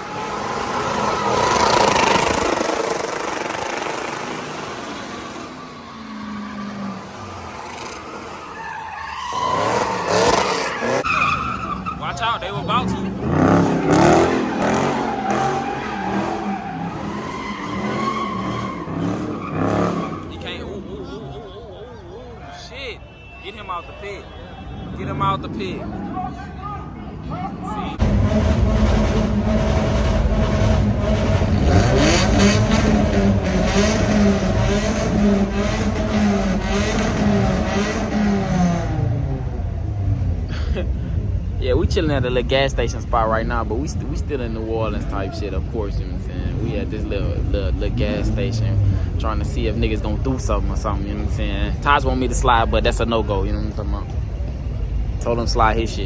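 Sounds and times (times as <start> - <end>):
car engine at high revs: 0.0 - 8.3, 9.5 - 11.0, 12.5 - 20.4, 28.0 - 41.8
tyres squealing: 4.9 - 25.2.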